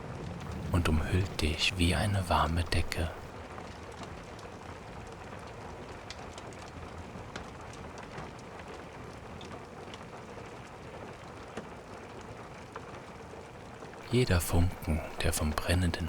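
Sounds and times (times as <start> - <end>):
steady rain: 0.4 - 3.3, 14.0 - 16.0.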